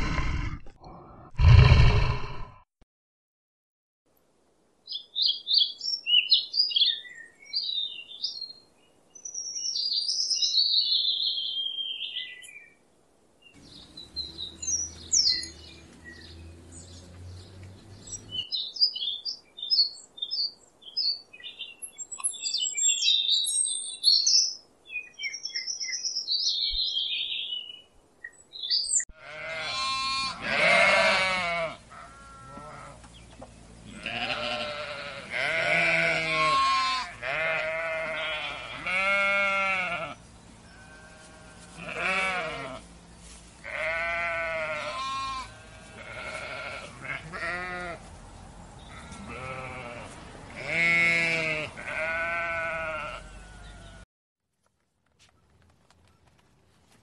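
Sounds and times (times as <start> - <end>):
small birds chirping and singing: 4.8 - 12.8, 13.4 - 29.6, 33.0 - 36.5, 37.2 - 54.0
livestock bleating: 29.1 - 33.0, 33.8 - 42.9, 43.6 - 48.0, 48.9 - 54.0.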